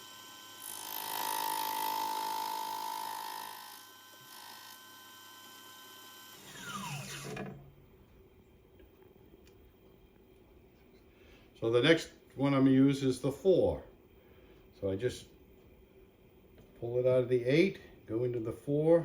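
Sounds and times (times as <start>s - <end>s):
cutter cutting brass: 0.0s - 7.8s
machine tool motor: 0.0s - 7.8s
motor winding down: 0.0s - 7.9s.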